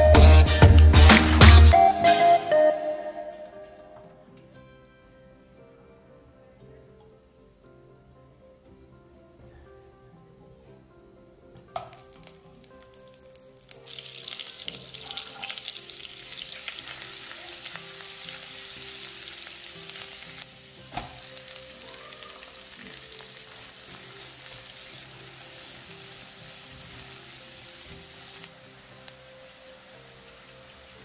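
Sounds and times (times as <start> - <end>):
onion dropped into pan clack: 11.8 - 12.2
butter and oil sizzling in pan: 11.8 - 31.0.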